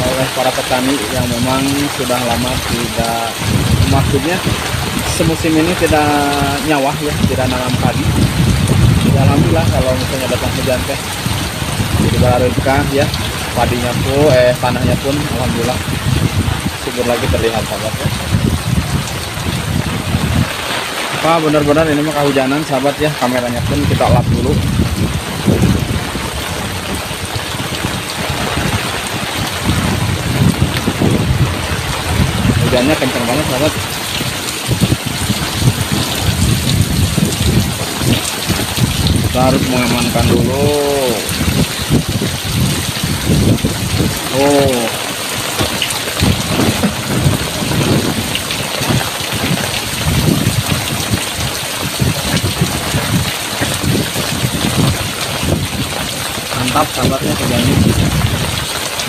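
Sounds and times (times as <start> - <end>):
heavy downpour: 0.0 - 59.0
heavy rain pouring: 0.0 - 59.0
wind buffeting microphone: 0.0 - 59.0
low thumps: 23.6 - 56.1.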